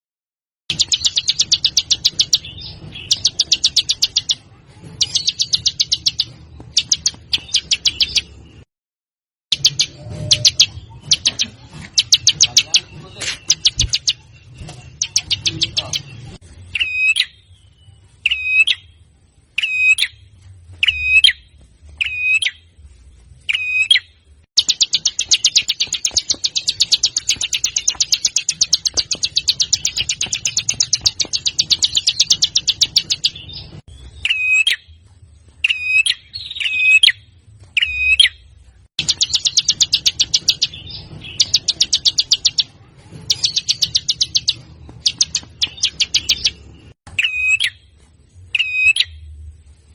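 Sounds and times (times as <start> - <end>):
songbird rattling trills: 0.7 - 4.4, 9.5 - 16.0, 24.6 - 33.4, 39.0 - 42.7, 43.3 - 46.6.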